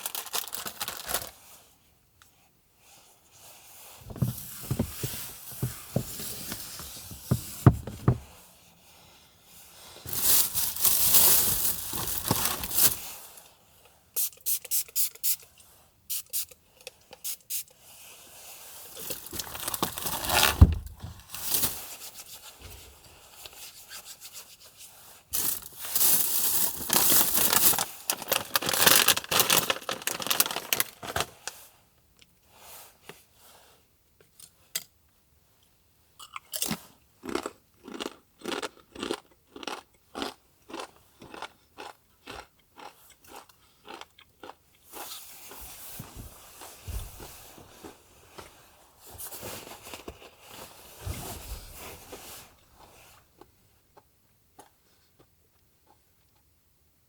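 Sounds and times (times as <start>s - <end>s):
rustling or scraping noise: 3.4s - 13.3s, 17.8s - 31.7s, 45.0s - 53.4s
person chewing crunchy food: 36.2s - 45.6s.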